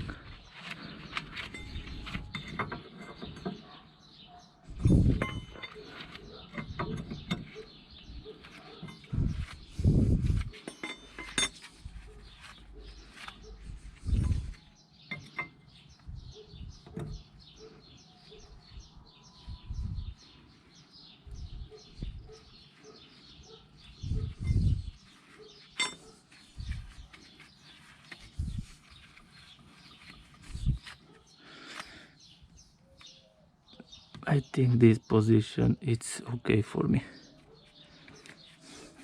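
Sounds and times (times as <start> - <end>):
birds chirping: 0.0 - 39.0
knocks and clinks of metal tools: 4.8 - 7.6, 10.6 - 11.7, 25.8 - 26.1.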